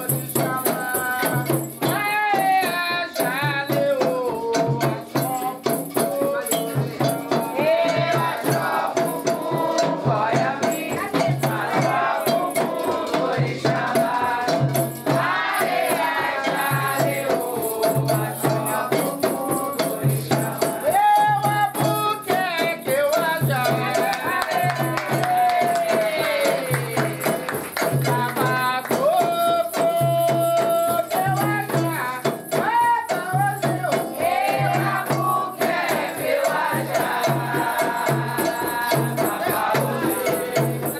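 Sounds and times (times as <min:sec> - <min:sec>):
person singing: 0:00.0 - 0:40.9
shaken rattle: 0:00.0 - 0:40.9.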